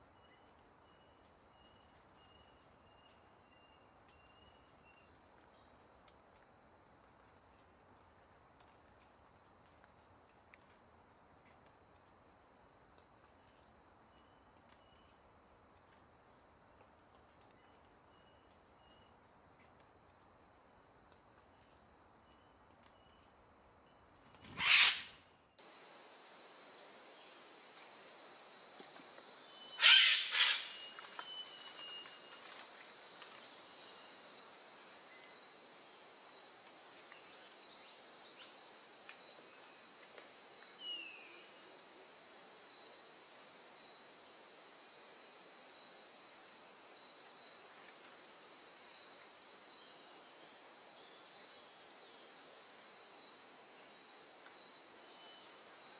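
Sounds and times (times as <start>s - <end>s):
loud sudden calls: 24.6s - 25.1s.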